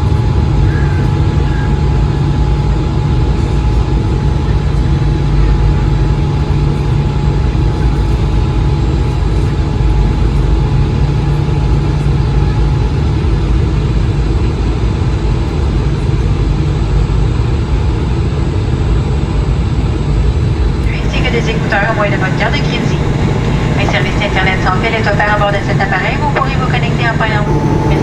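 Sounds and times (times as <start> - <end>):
jet engines and airflow in cabin: 0.0 - 28.0
faint steady tones: 20.8 - 28.0.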